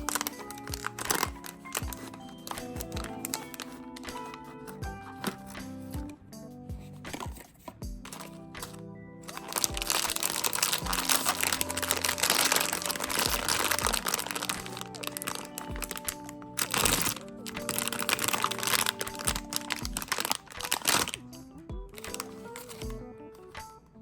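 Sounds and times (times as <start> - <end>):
plastic packaging crinkling: 0.0 - 5.6, 7.1 - 21.2, 22.0 - 22.9
soft background music: 0.0 - 24.0.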